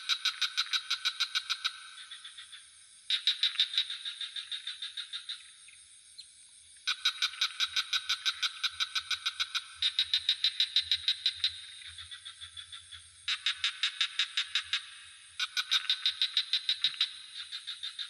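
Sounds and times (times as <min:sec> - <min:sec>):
frogs trilling: 0:00.0 - 0:18.0.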